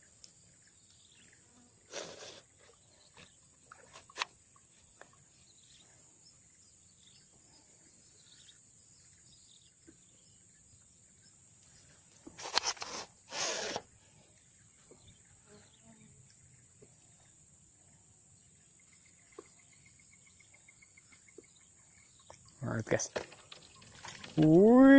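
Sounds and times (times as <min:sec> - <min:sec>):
rustling: 0:12.1 - 0:13.8.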